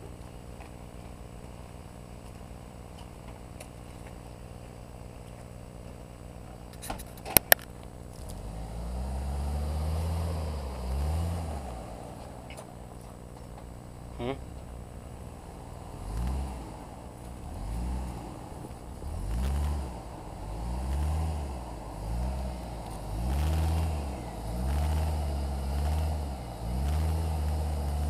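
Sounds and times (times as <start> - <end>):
engine idling and revving: 0.0 - 28.0
sharp clicks: 6.8 - 8.3.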